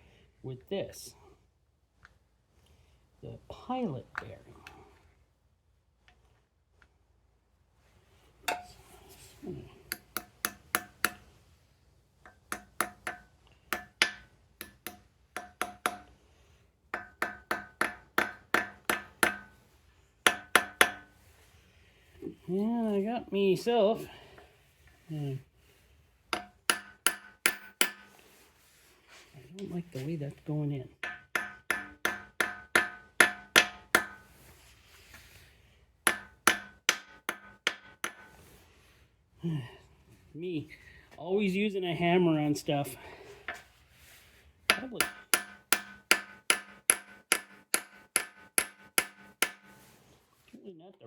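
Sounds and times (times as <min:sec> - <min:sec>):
hammer striking metal: 0:08.5 - 0:08.8, 0:09.9 - 0:11.2, 0:12.3 - 0:16.1, 0:17.0 - 0:19.5, 0:20.3 - 0:21.1, 0:26.4 - 0:28.1, 0:31.0 - 0:34.2, 0:36.1 - 0:38.3, 0:44.7 - 0:49.8.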